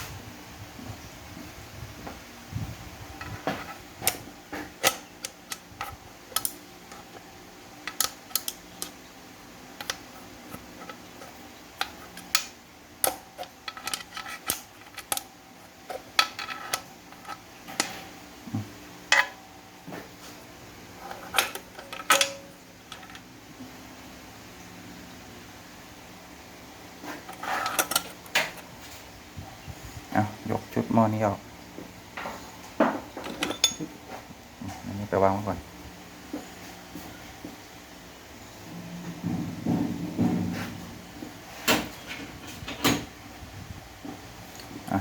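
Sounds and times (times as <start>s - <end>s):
steady fan hum: 0.0s - 45.0s
metal parts and tools clinking: 7.9s - 9.0s, 9.8s - 15.3s, 15.9s - 18.1s, 21.0s - 23.3s, 27.2s - 28.6s, 33.2s - 34.0s.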